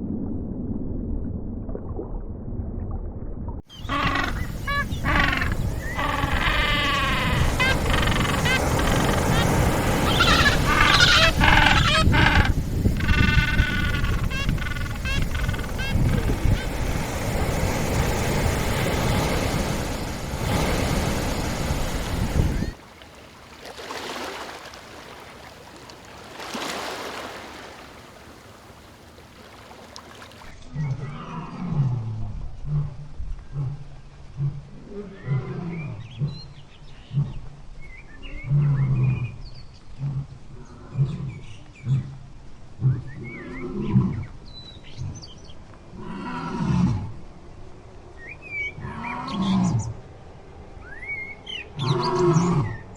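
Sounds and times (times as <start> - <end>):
short low animal calls: 3.8 - 16.4
loud noisy animal sounds: 3.8 - 17.0
breathy animal calls: 3.9 - 16.7.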